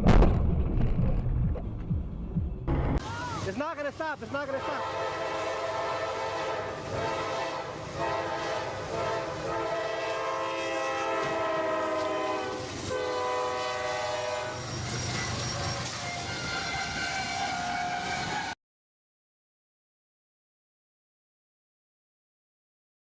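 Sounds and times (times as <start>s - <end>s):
train air horn blasts: 4.6s - 18.6s.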